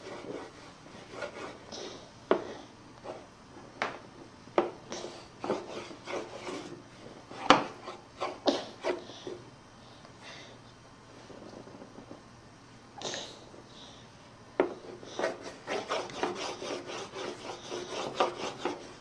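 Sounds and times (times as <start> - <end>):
crayon scribbling on paper: 15.1 - 19.0.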